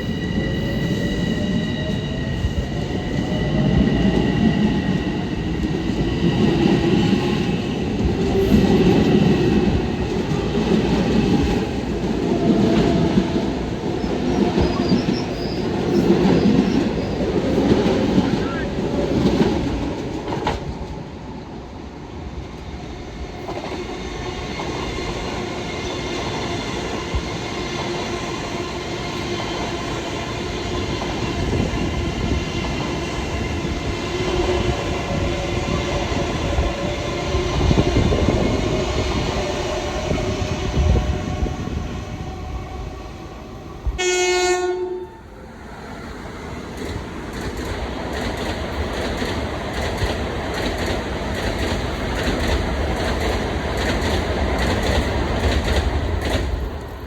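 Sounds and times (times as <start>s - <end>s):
train rumbling on rails: 0.0s - 57.0s
train horn blast: 44.0s - 45.2s.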